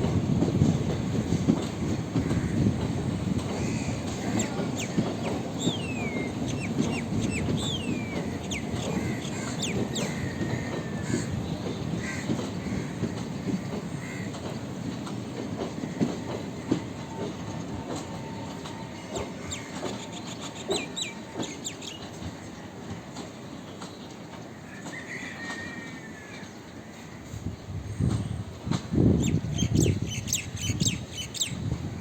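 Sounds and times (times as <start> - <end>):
wheels clacking over rail joints: 0.0 - 25.7
train rumbling along track: 0.0 - 32.0
wheel-flange squeals: 4.2 - 10.6.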